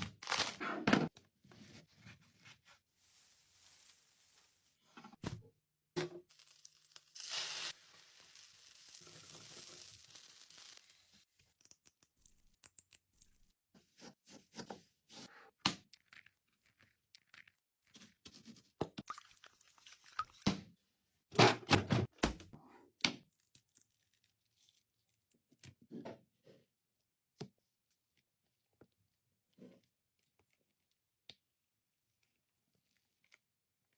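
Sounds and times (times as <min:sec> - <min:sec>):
packaging tearing: 0:00.0 - 0:00.6.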